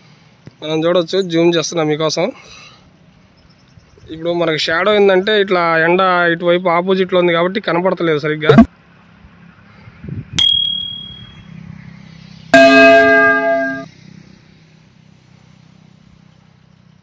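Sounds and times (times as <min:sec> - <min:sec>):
sharp ding: 0:10.4 - 0:11.4, 0:12.6 - 0:13.9
horn sounding: 0:12.6 - 0:13.9.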